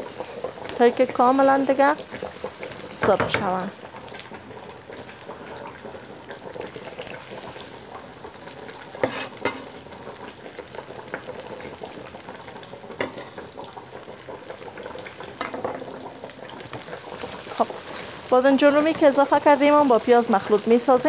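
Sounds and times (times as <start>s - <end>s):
vegetables sizzling in oil: 0.0s - 21.0s
wooden spoon knocking pan: 3.0s - 3.6s.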